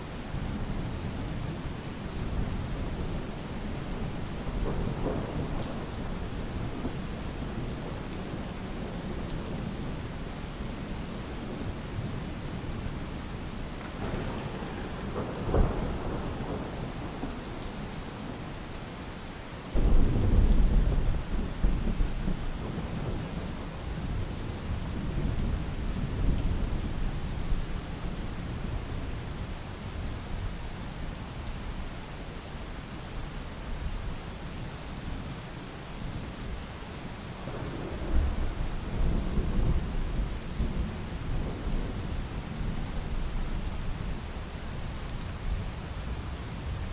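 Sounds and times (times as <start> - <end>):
heavy rain: 0.0 - 46.9
thunder: 4.4 - 8.0, 13.8 - 18.0, 19.8 - 27.6, 37.4 - 42.8.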